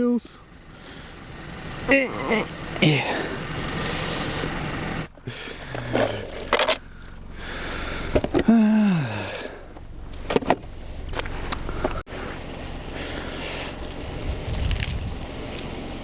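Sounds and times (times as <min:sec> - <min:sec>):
car engine idling: 0:00.0 - 0:16.0
metal chains jingling and clanking: 0:06.0 - 0:07.4, 0:12.6 - 0:16.0.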